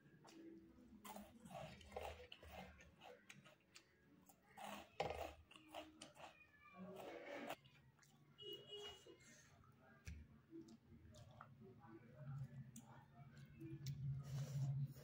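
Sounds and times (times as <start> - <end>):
man chewing: 0.0 - 9.3, 10.6 - 11.6.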